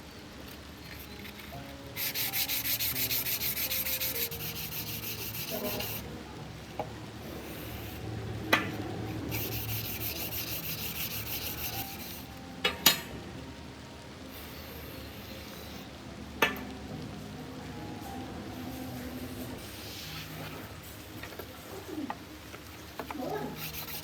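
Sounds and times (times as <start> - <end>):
rubbing strokes on knife: 2.0 - 6.0, 9.2 - 12.3, 23.5 - 24.0.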